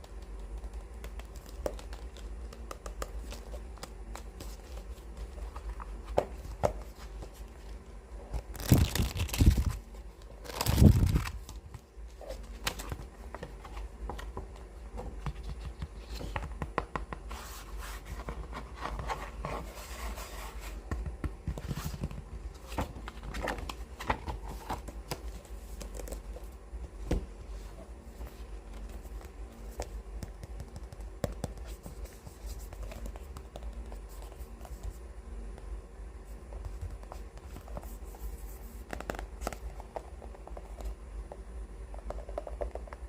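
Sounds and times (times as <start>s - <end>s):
fingernails tapping on book covers: 0.0s - 7.4s, 20.8s - 24.1s, 28.8s - 32.1s
books rustling: 17.3s - 30.0s.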